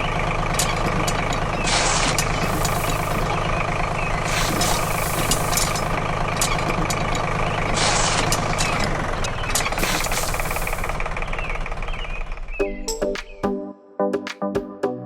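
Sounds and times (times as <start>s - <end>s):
diesel engine idling with knocking: 0.0s - 13.4s
hissing bursts: 0.6s - 7.0s, 7.6s - 11.0s.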